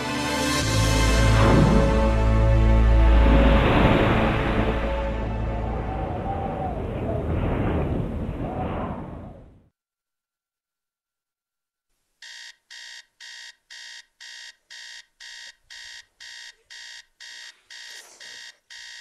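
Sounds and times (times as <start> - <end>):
alarm clock beeping: 12.2 - 19.0.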